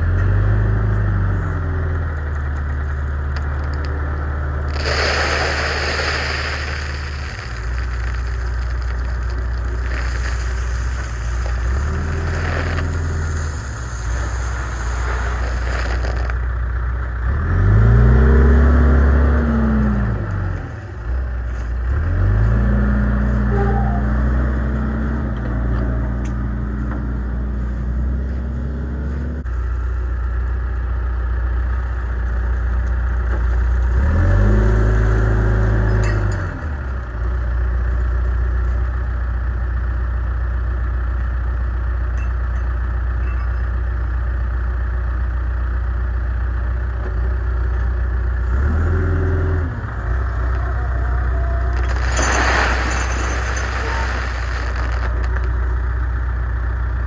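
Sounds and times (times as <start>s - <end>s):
diesel engine idling and revving: 0.0s - 4.8s, 6.1s - 57.0s
bright hiss: 4.7s - 16.4s, 51.8s - 55.3s.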